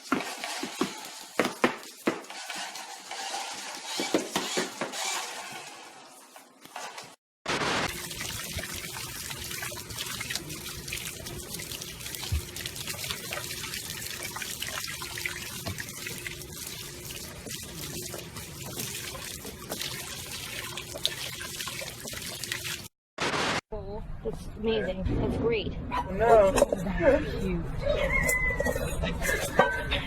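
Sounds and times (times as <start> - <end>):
water running: 0.0 - 7.2, 7.9 - 22.9.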